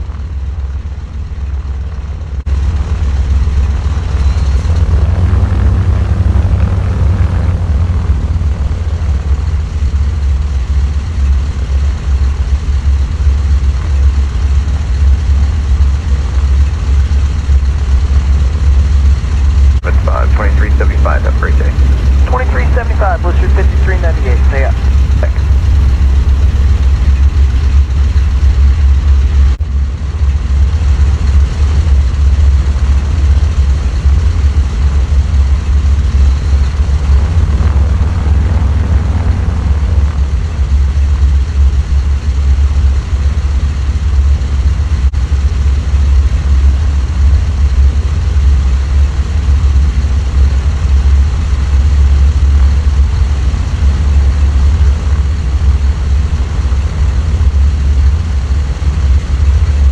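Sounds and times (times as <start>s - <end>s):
aircraft engines droning: 2.6s - 10.0s, 19.8s - 29.6s.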